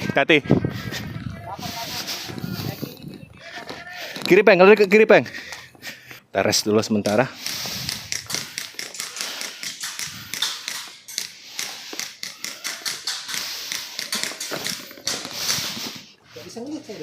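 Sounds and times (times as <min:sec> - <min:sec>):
rustling near microphone: 0:14.8 - 0:17.0.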